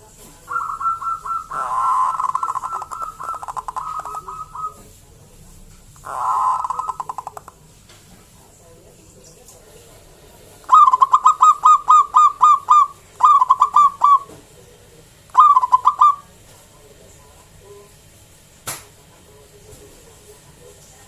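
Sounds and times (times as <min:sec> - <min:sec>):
dove cooing: 0:00.4 - 0:04.9, 0:06.0 - 0:07.6, 0:10.7 - 0:14.4, 0:15.3 - 0:16.3.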